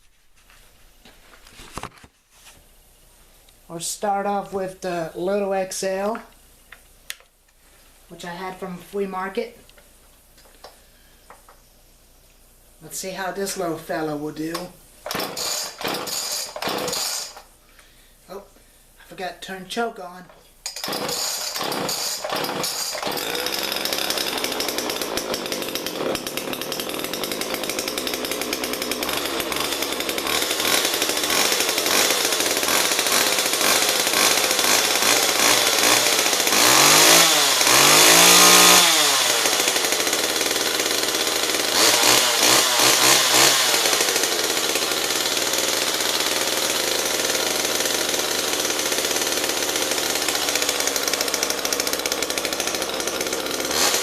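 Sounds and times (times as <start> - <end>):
chainsaw running and revving: 14.5 - 17.5, 20.7 - 54.0.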